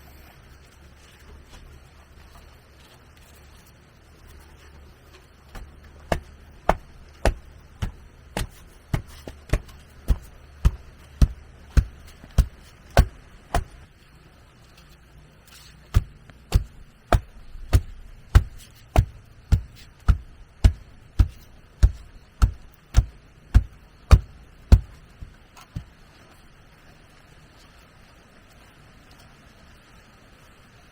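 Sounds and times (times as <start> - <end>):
hand tool strikes: 5.6 - 13.8, 15.9 - 25.9.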